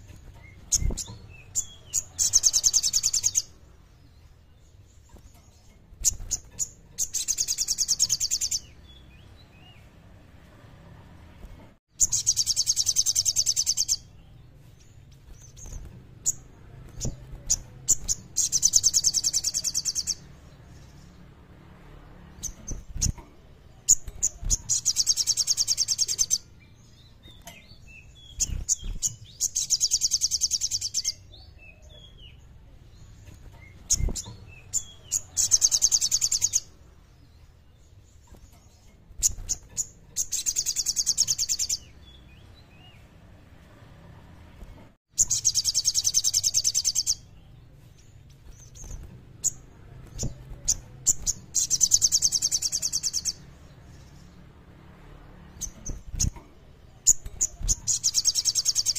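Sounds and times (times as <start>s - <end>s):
bird singing a rapid high trill: 0.3s - 4.9s, 6.0s - 9.9s, 11.9s - 21.2s, 23.8s - 38.1s, 39.2s - 43.1s, 45.1s - 54.4s, 55.5s - 58.9s.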